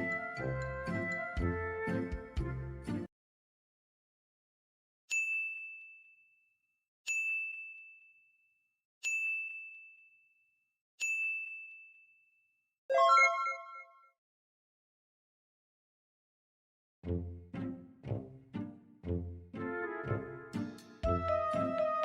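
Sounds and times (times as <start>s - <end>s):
bell-like ding: 12.9s - 14.0s.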